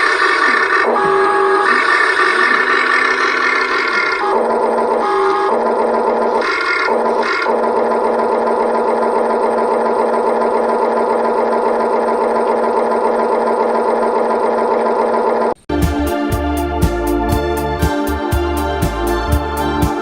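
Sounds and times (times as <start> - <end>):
toy excavator motors whining: 0.0 - 15.6.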